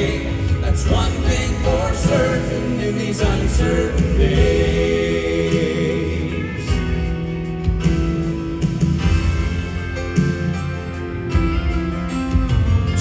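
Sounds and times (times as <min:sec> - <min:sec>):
backing vocals: 0:00.0 - 0:07.0
bass and drum beat: 0:00.0 - 0:13.0
piano: 0:00.0 - 0:13.0.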